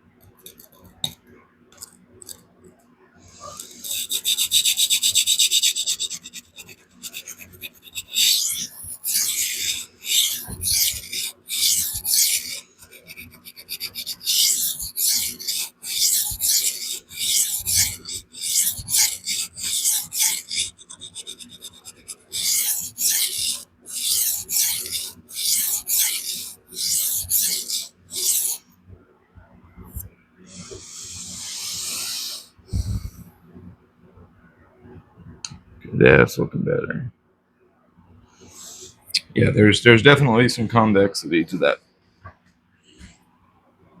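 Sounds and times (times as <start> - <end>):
knife scraping on sharpening stone: 0.4 - 1.2, 3.3 - 28.6.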